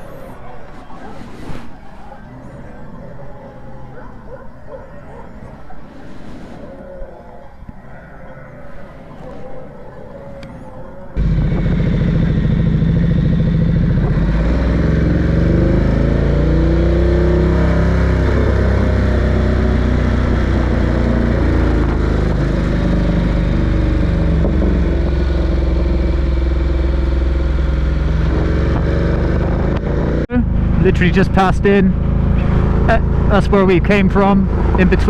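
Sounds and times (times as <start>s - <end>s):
motorcycle engine revving: 10.4s - 35.0s.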